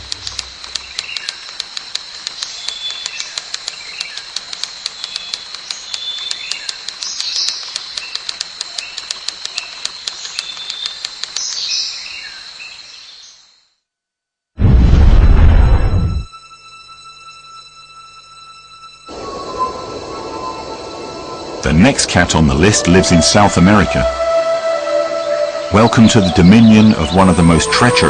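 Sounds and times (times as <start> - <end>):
regular clicking: 0.0 - 11.8
bird chirps: 0.1 - 1.6, 2.2 - 13.4, 22.8 - 28.0
steady high tone: 16.5 - 28.0.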